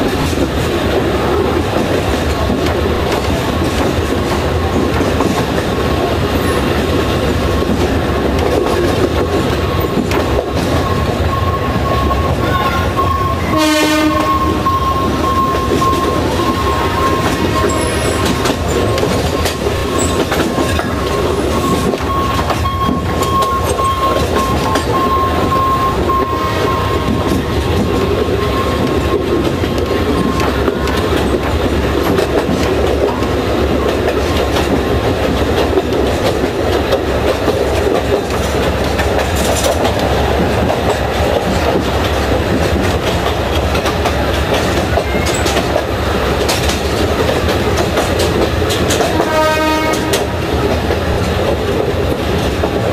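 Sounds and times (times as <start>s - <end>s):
train rumbling on track: 0.0s - 52.9s
wheels clattering over rail joints: 0.0s - 52.9s
train horn blast: 13.4s - 14.7s, 49.1s - 50.4s.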